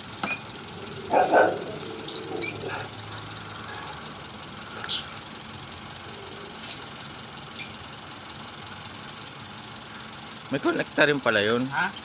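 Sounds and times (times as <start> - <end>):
car engine idling and misfiring: 0.0 - 12.0
dog barking: 1.0 - 2.9.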